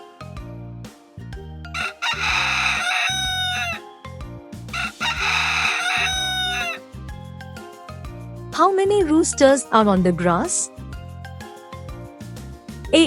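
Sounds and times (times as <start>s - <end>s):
light background music: 0.0s - 13.0s
rooster crowing: 1.8s - 3.8s, 4.7s - 6.8s.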